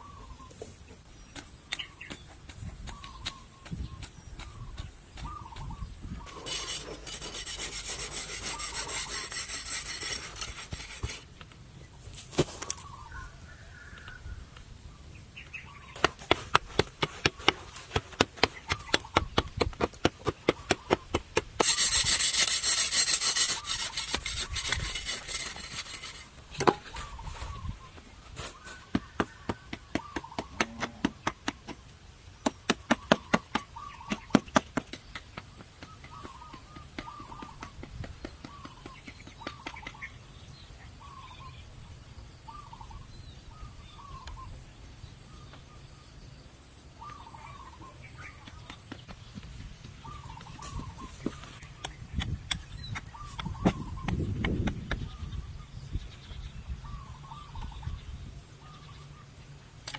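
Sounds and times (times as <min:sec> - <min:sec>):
hand tool scraping hard surface: 0:06.3 - 0:11.3, 0:20.7 - 0:27.5.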